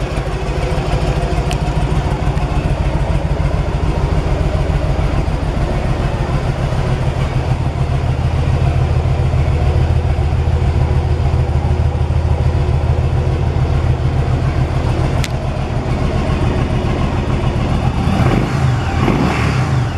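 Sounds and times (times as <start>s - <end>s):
motorcycle engine idling: 0.0s - 19.9s
sharp click: 15.2s - 15.4s
engine revving: 15.2s - 19.9s.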